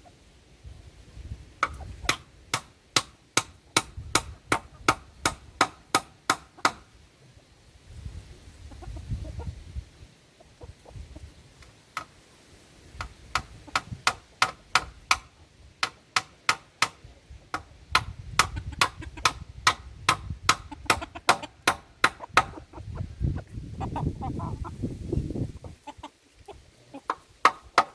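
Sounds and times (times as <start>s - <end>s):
hand tool striking hard material: 1.6s - 6.9s, 13.0s - 22.6s, 27.1s - 27.9s.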